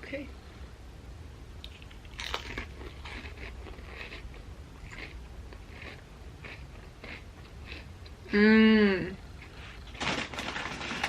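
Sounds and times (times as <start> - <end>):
person chewing crunchy chips: 1.6 - 8.2.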